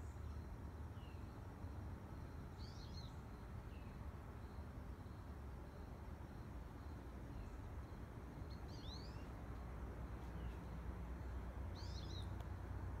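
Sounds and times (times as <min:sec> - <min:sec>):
faint outdoor rumble: 0:00.0 - 0:13.0
bird chirping: 0:02.2 - 0:05.2, 0:05.8 - 0:09.6, 0:10.2 - 0:12.5.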